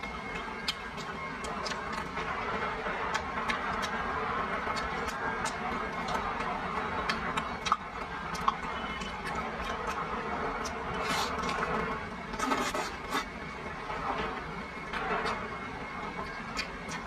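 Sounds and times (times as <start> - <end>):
person chewing wetly: 0.6 - 2.1, 4.6 - 6.4, 7.0 - 11.8, 12.4 - 13.3, 16.2 - 17.0.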